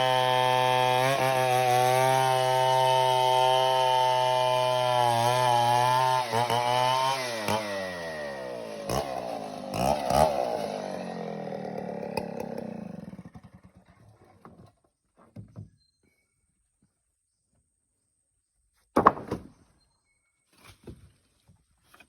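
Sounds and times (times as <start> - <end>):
chainsaw revving and running down: 0.0 - 14.0.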